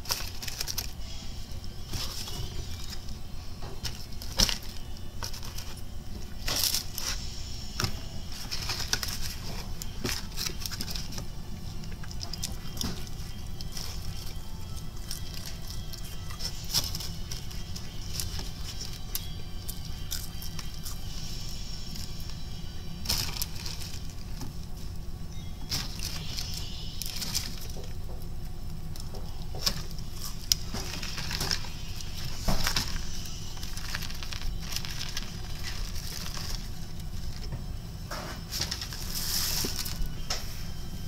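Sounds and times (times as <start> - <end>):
steady low hum: 0.0 - 41.0
person chewing and smacking: 9.3 - 22.4.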